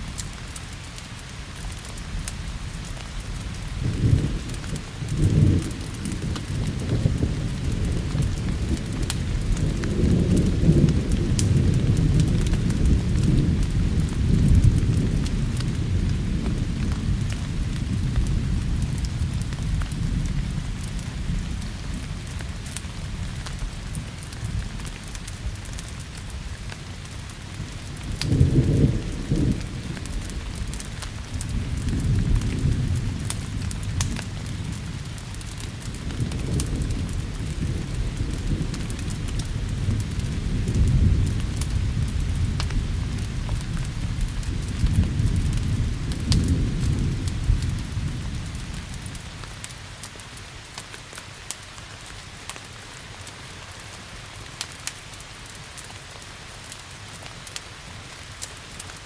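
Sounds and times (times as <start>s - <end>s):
steady rain: 0.0s - 59.0s
wood fire crackling: 0.0s - 59.0s
rolling thunder: 3.3s - 24.8s, 27.6s - 49.3s.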